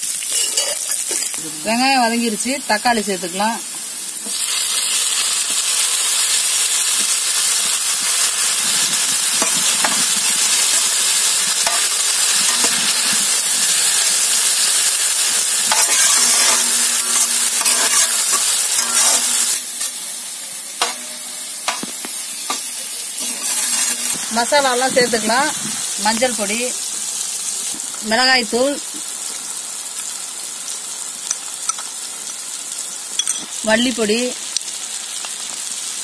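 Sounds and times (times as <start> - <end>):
tomatoes sizzling in hot oil: 0.0 - 36.0
metal ladle scraping: 15.7 - 19.9, 23.2 - 24.3.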